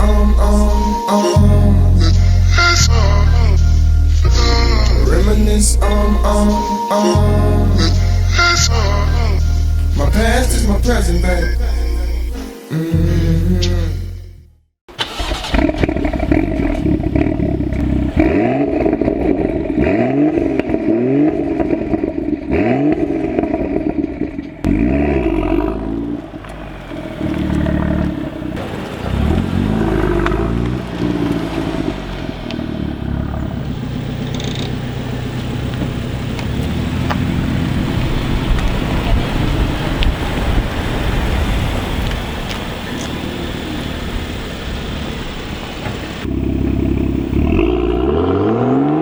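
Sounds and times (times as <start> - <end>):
car engine accelerating hard: 0.0 - 6.6, 15.0 - 49.0
wind and road noise: 15.0 - 49.0.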